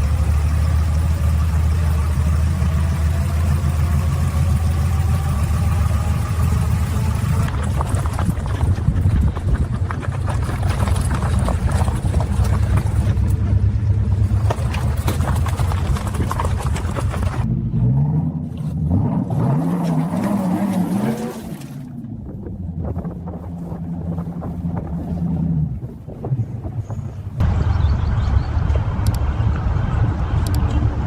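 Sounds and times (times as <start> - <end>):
engine running low rumble: 0.0 - 31.0.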